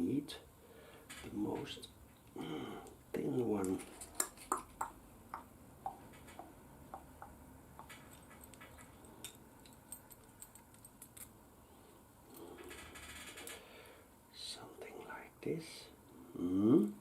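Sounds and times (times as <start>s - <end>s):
small parts clicking and tapping: 3.6s - 11.4s.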